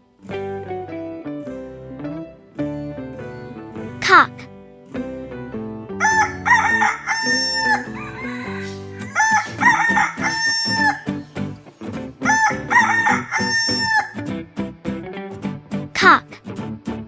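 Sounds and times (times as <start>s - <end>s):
light background music: 0.0s - 17.0s
rooster crowing: 6.0s - 11.1s, 12.2s - 14.2s.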